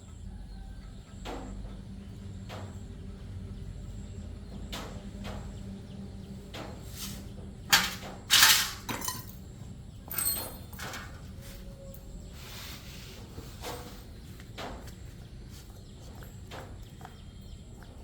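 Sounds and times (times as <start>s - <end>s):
steady low hum: 0.0s - 18.0s
metal clattering rattle: 7.6s - 11.4s
metal tools clicking and knocking: 7.7s - 11.3s.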